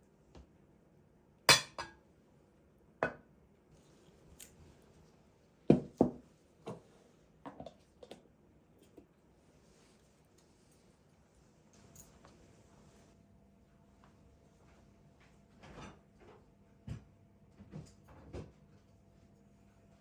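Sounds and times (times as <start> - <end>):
dishes clinking and knocking: 1.5 - 2.0.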